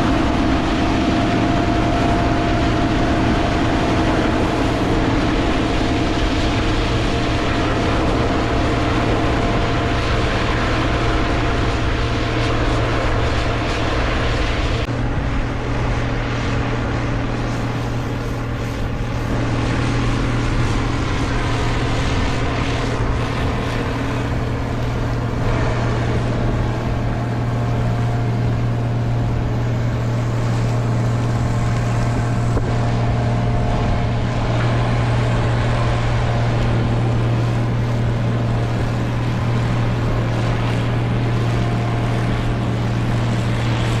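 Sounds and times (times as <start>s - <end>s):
diesel machinery engine hum: 0.0s - 44.0s.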